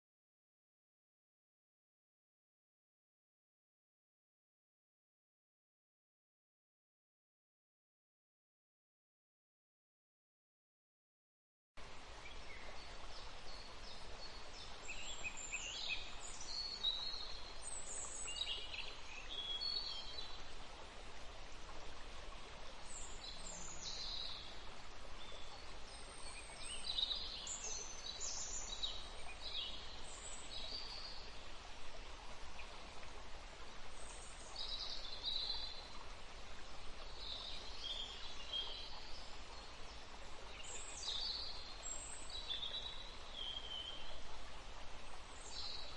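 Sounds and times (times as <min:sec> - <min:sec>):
background hiss: 0:11.8 - 0:45.9.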